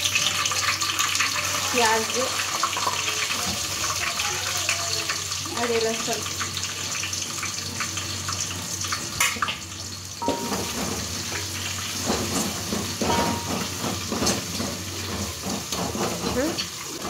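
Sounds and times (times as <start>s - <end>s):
onions frying in oil sizzling: 0.0s - 17.0s
wooden spoon scraping pot: 12.0s - 17.0s.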